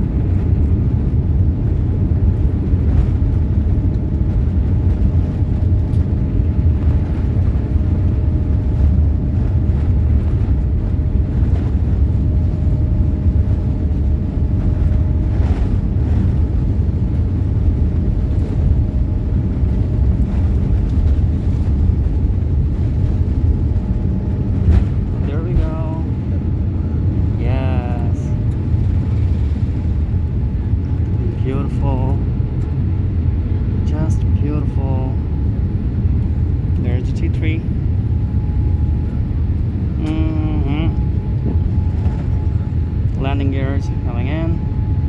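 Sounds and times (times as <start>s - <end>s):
faint steady whine: 0.0s - 45.0s
jet engines and wheels rumbling: 0.0s - 45.0s.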